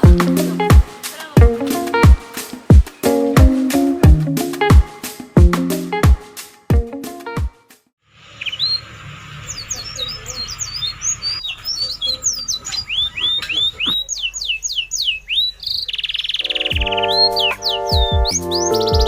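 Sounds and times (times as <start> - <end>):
steady hiss: 0.0 - 6.7
birds chirping: 0.0 - 6.9, 8.2 - 19.0.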